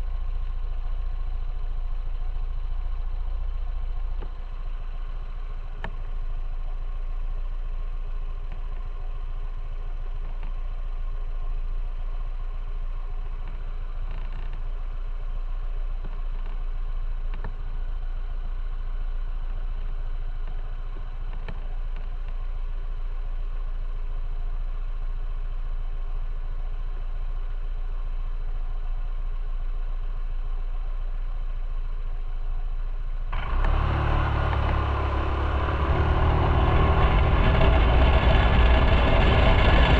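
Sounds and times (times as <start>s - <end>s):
motorcycle engine running: 0.0s - 39.9s
faint ticks: 4.1s - 4.4s, 5.8s - 6.1s, 10.2s - 10.6s, 13.4s - 14.7s, 16.0s - 17.6s, 19.4s - 22.4s.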